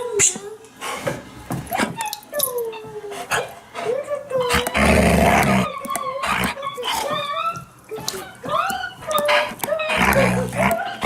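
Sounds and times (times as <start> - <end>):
dog whining: 4.3 - 11.0.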